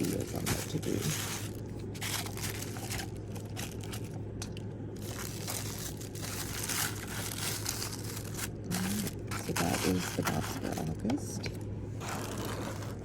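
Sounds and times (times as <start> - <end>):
cardboard box crunching and crinkling: 0.0 - 4.1, 5.0 - 10.8, 12.1 - 13.0
packaging rustling: 0.0 - 11.0, 12.0 - 13.0
steady low hum: 0.0 - 13.0.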